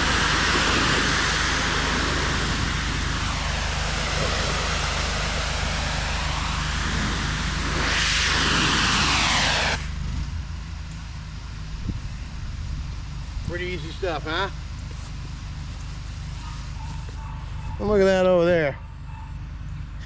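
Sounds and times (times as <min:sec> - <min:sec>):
pressure washer spray hiss: 0:00.0 - 0:10.2
engine humming: 0:00.0 - 0:20.0.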